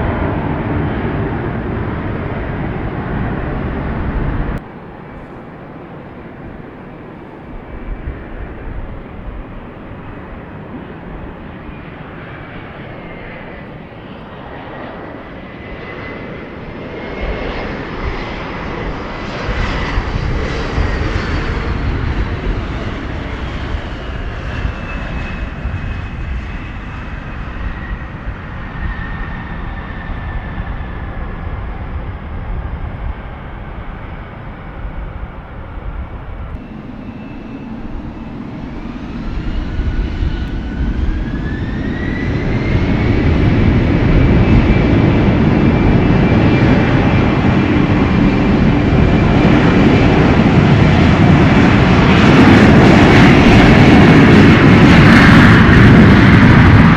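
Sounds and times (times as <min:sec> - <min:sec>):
airliner engines passing: 0:00.0 - 0:56.9
engine whine dropping in pitch: 0:36.0 - 0:50.1.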